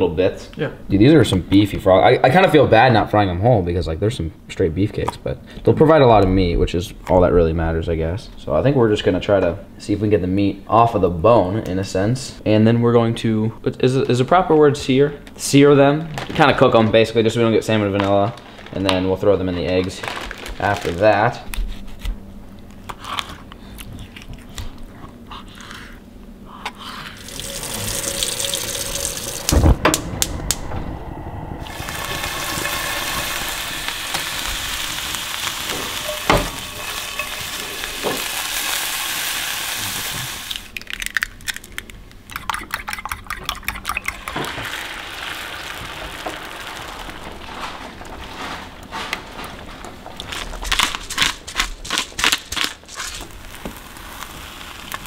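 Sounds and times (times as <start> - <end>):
meat sizzling in a skillet: 27.2 - 29.5, 31.6 - 40.7, 44.2 - 47.2, 53.1 - 55.0.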